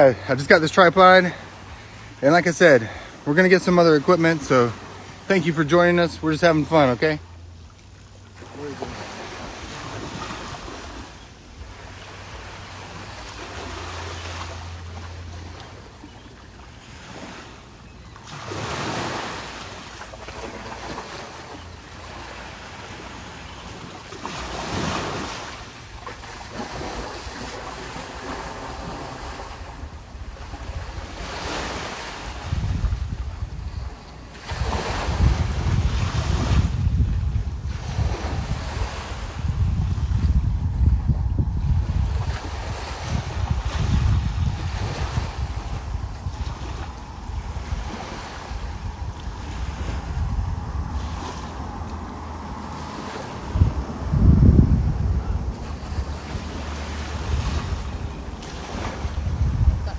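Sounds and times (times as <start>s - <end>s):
small waves washing on shore: 0.0s - 59.9s
wind buffeting microphone: 20.3s - 59.9s.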